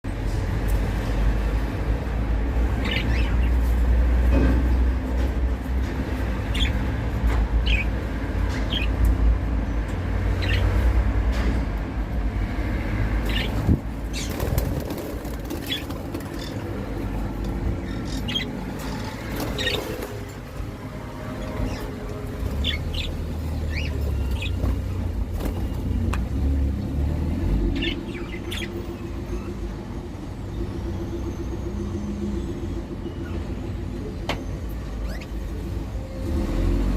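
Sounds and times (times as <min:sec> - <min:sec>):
budgerigars chirping: 0:17.8 - 0:19.9.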